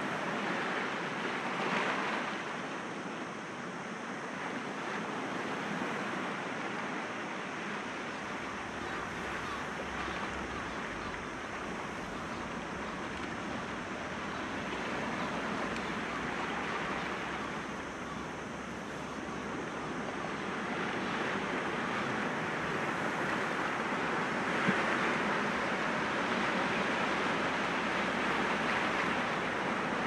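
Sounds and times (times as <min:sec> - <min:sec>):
waves breaking against rocks: 0:08.2 - 0:30.0.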